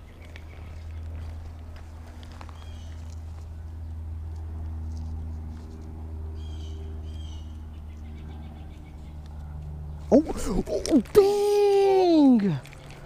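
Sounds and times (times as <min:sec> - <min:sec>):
steady low hum: 0:00.0 - 0:13.0
bird calling: 0:02.5 - 0:03.1, 0:06.4 - 0:11.1.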